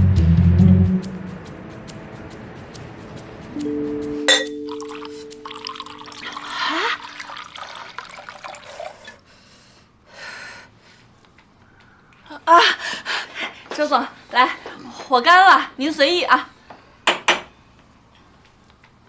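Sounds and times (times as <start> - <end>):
glass clink: 4.2 - 8.6
drink pouring into a glass: 4.7 - 9.2.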